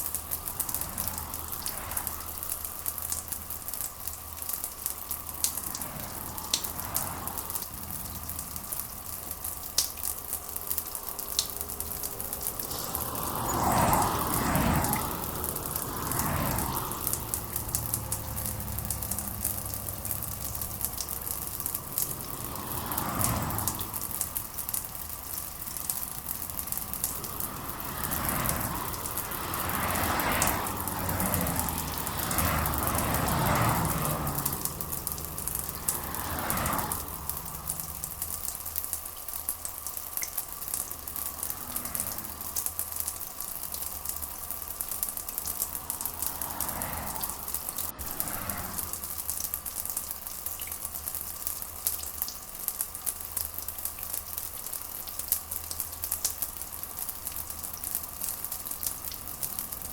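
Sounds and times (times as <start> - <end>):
steady rain falling: 0.0 - 59.9
rushing sound: 5.6 - 38.4.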